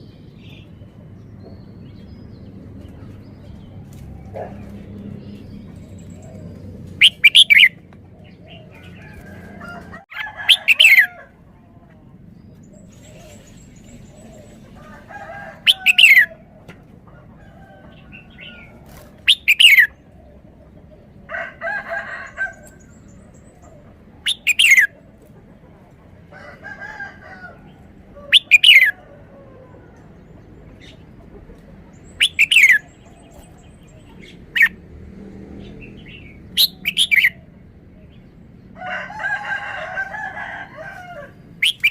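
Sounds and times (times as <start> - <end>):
bird singing downward phrases: 0.0 - 9.2, 10.0 - 11.2, 12.4 - 16.4, 17.6 - 20.8, 21.6 - 25.0, 28.2 - 31.4, 32.0 - 34.8, 35.7 - 38.2, 41.6 - 41.9
soft bird calls: 0.0 - 21.1, 21.7 - 34.8, 40.8 - 41.9.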